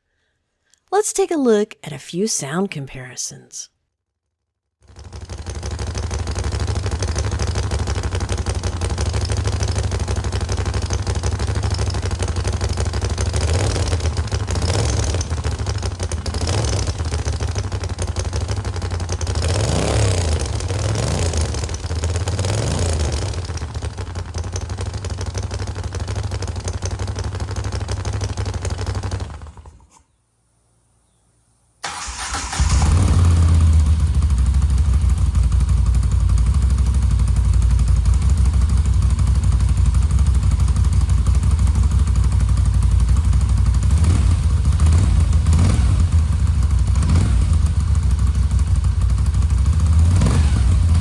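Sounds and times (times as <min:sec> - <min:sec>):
motorcycle engine idling: 0:04.9 - 0:29.8, 0:32.0 - 0:51.0.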